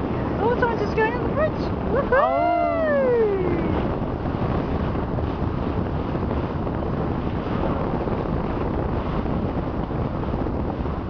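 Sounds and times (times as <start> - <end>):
rushing water and sea: 0.0 - 11.0
wind buffeting microphone: 0.0 - 11.0.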